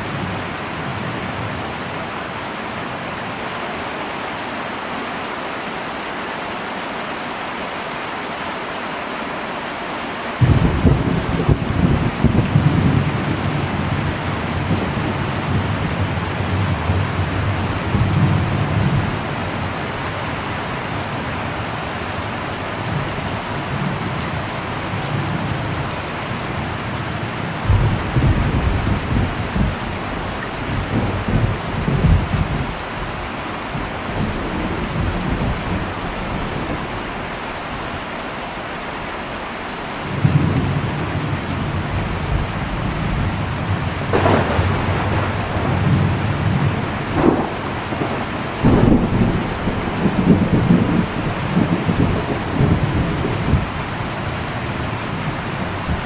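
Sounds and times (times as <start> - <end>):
heavy rain on metal roof: 0.0 - 56.0
thunder rumbling: 10.4 - 37.4, 40.0 - 56.0.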